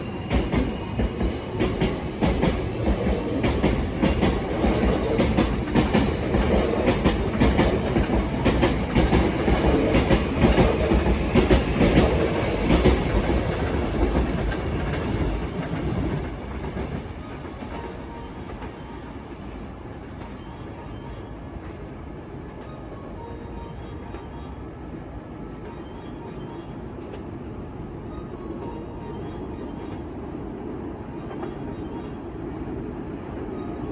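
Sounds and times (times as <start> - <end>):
train wheels clacking over rail joints: 0.2 - 17.9.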